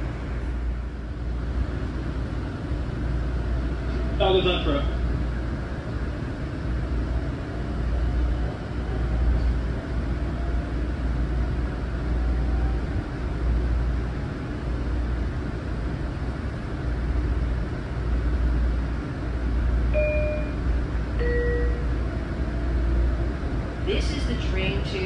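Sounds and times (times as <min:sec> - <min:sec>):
train rumbling on track: 0:00.0 - 0:25.0
brief electronic tone: 0:20.0 - 0:20.6, 0:21.2 - 0:21.9.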